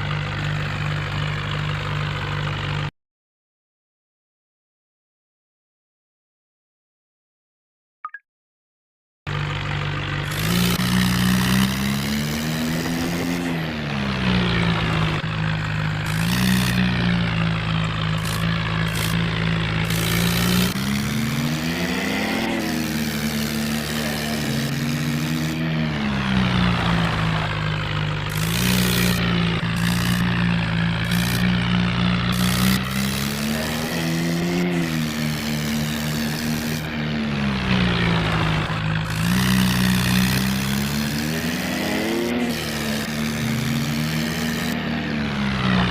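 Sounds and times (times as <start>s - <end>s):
toy tractor motor revving: 9.4s - 45.9s.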